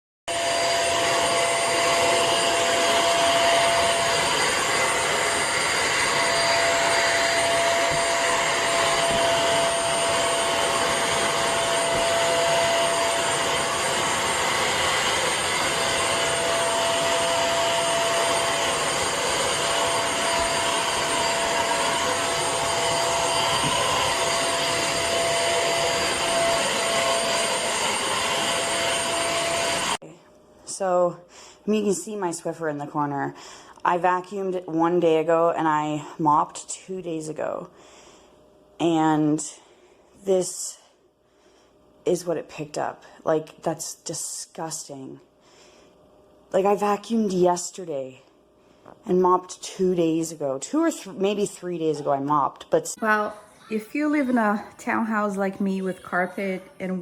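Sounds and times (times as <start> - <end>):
floor washer motor whine: 0.3 - 30.0, 53.0 - 57.0.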